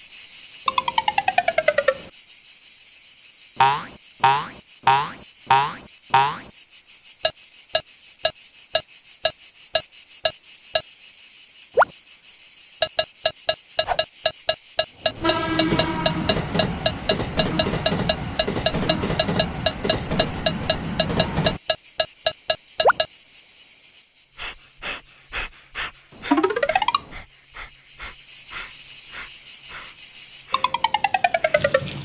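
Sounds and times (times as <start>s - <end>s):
high cricket-like chirring: 0.0s - 32.0s
cartoon falling sweeps: 3.6s - 6.5s, 26.2s - 27.3s
regular ticks: 3.6s - 6.5s, 12.8s - 23.1s, 24.4s - 31.9s.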